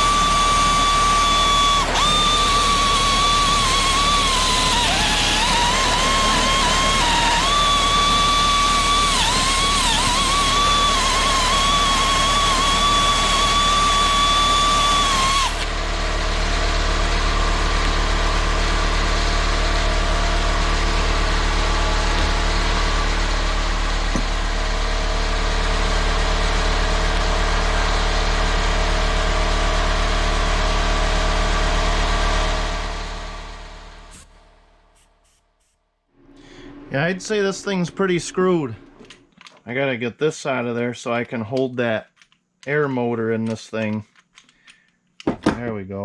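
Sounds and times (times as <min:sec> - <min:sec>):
air grinder whining: 0:00.0 - 0:34.3.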